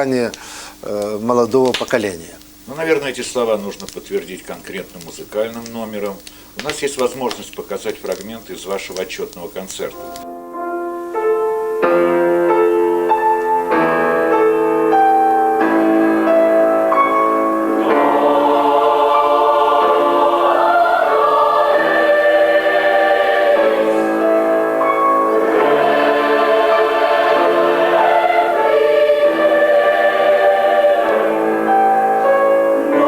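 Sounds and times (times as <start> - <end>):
boys choir singing held chords: 17.5 - 33.0.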